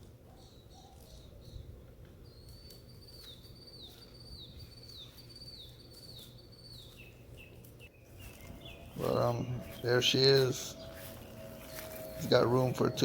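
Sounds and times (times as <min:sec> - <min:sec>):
bird singing high slurred note: 0:08.1 - 0:13.0
faint low rumble: 0:08.1 - 0:13.0.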